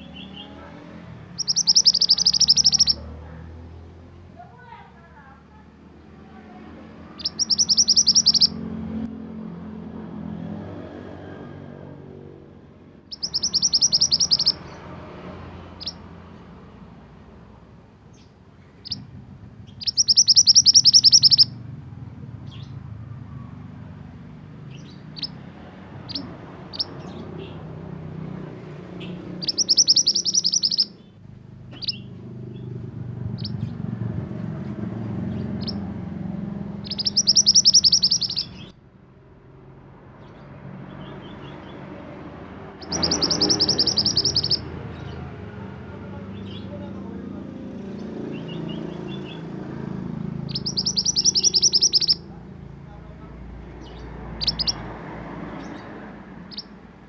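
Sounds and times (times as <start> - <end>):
songbird trilling: 0.0 - 3.8, 6.3 - 9.1, 13.1 - 16.2, 18.1 - 22.9, 24.6 - 38.8, 42.8 - 54.9, 55.6 - 56.8
bird chirps: 0.0 - 5.7, 6.3 - 9.1, 13.1 - 17.3, 18.0 - 38.8, 40.2 - 56.8.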